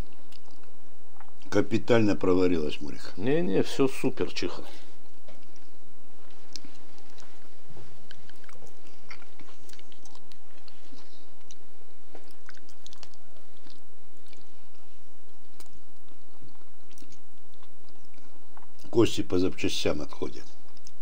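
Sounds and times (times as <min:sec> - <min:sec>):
person chewing meat: 0:00.0 - 0:01.5, 0:05.3 - 0:18.9.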